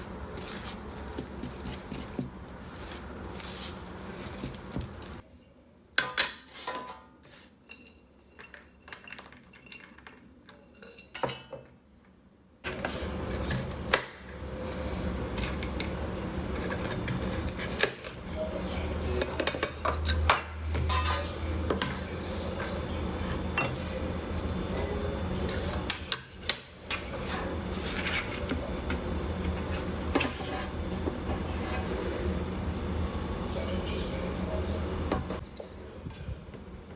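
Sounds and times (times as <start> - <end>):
dishes and cutlery clinking: 6.0 - 11.8, 19.1 - 23.9.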